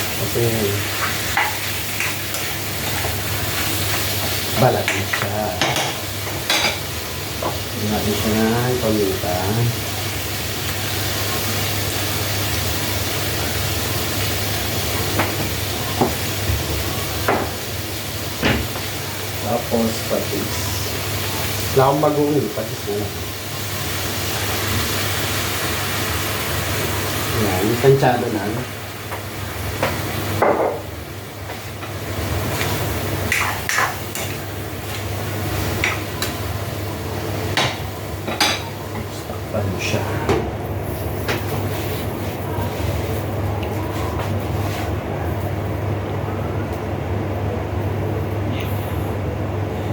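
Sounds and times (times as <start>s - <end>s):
food sizzling in a hot pan: 0.0s - 39.6s
steady low hum: 26.4s - 49.9s.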